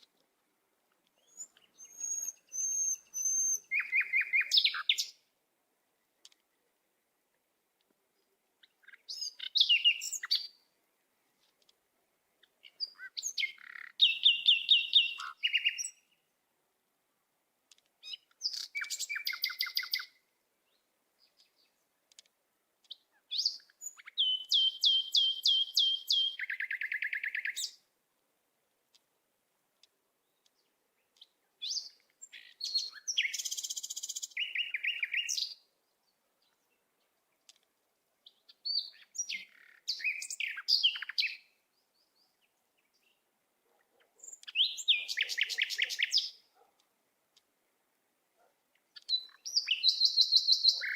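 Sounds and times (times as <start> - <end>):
songbird trilling: 1.2 - 5.2, 8.7 - 10.6, 12.6 - 16.2, 18.0 - 20.1, 23.3 - 27.8, 31.6 - 35.6, 38.3 - 41.5, 44.2 - 46.4, 49.0 - 50.9.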